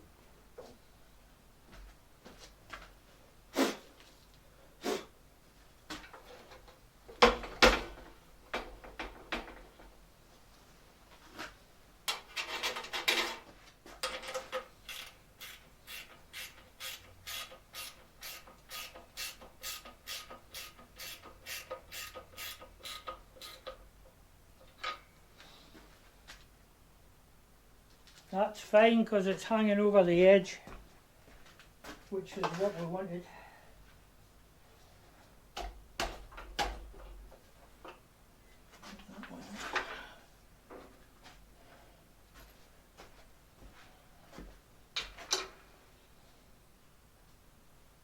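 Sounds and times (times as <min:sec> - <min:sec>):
hand tool strokes on metal: 0:14.9 - 0:23.7.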